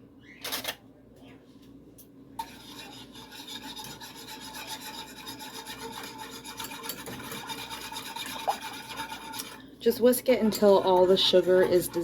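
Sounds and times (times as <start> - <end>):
whisk scraping a saucepan: 2.4 - 12.0.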